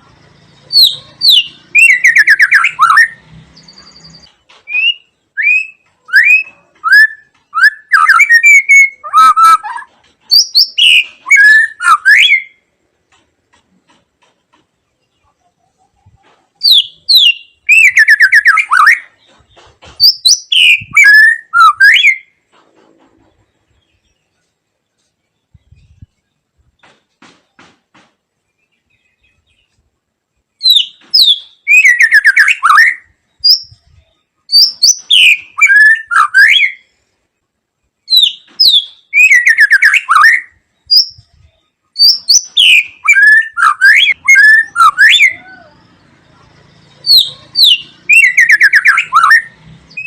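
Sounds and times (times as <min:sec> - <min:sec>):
bird singing whistles and trills: 0:00.3 - 0:12.6, 0:16.6 - 0:19.2, 0:20.0 - 0:22.3, 0:30.6 - 0:36.9, 0:38.1 - 0:46.2, 0:46.8 - 0:50.0.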